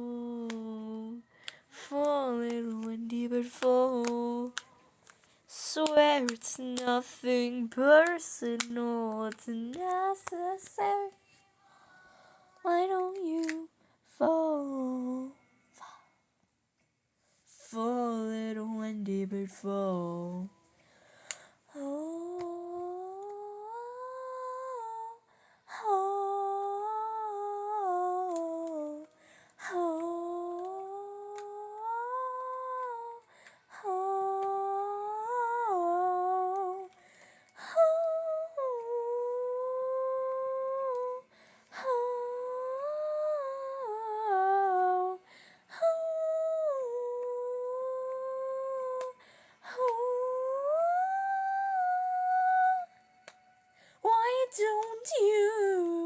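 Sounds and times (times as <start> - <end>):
girl breathing: 1.2 - 2.0, 20.8 - 21.8, 25.2 - 25.8, 29.1 - 29.8, 33.2 - 33.8, 37.0 - 37.8, 41.3 - 41.9, 45.2 - 45.8, 49.2 - 49.8, 53.7 - 54.1.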